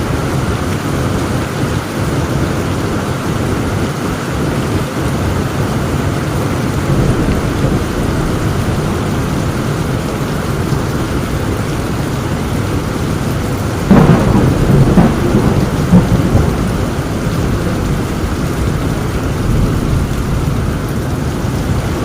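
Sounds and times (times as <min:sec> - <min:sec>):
heavy rain: 0:00.0 - 0:22.0
thunder rumbling: 0:05.9 - 0:22.0.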